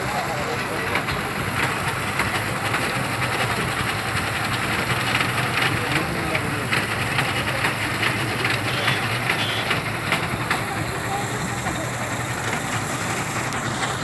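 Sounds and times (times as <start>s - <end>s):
people's voices: 0.0s - 14.0s
vehicle engine idling: 0.0s - 14.0s.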